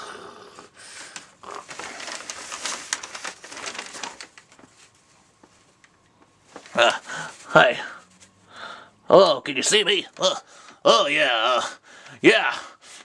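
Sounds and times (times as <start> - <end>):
paper bags rustling and crinkling: 0.8 - 8.4.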